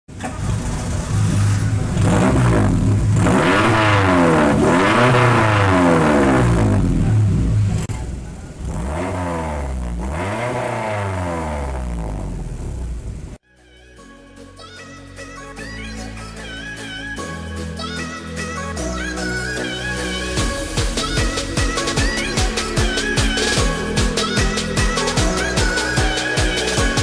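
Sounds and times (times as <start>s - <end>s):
car engine revving: 0.1s - 13.4s, 19.8s - 27.0s.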